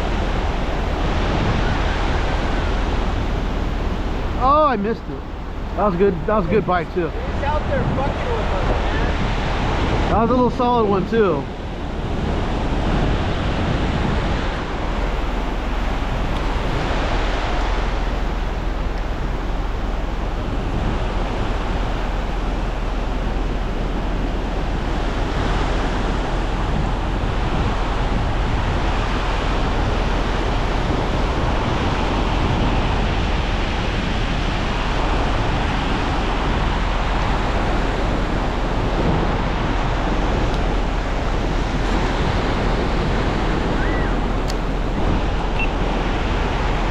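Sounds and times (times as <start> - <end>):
ocean surf washing onto beach: 0.0 - 46.9
wind rumbling on microphone: 0.0 - 46.9.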